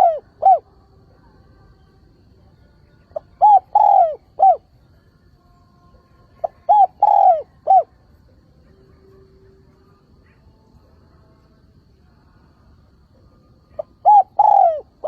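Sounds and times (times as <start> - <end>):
dove cooing: 0.0 - 0.7, 3.1 - 4.7, 6.4 - 7.9, 13.7 - 15.0.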